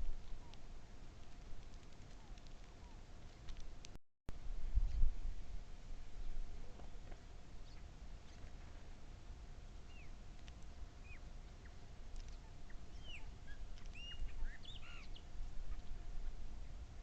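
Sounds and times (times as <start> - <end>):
low background rumble: 0.0 - 17.0
birds chirping: 9.8 - 17.0.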